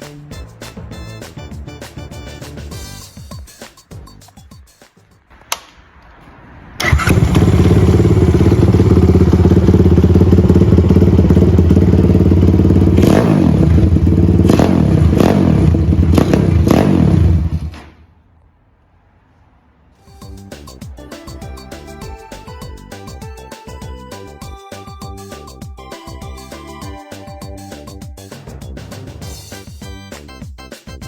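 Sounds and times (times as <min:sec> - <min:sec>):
click: 0:05.5 - 0:06.1
motorcycle engine revving: 0:06.8 - 0:17.8.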